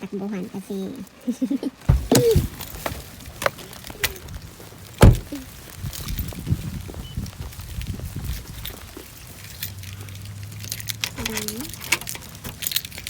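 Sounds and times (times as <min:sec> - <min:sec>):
hurried footsteps: 0:01.8 - 0:13.0
heavy thump: 0:01.9 - 0:03.0, 0:05.0 - 0:05.4
knocks: 0:01.9 - 0:03.0, 0:05.0 - 0:05.3.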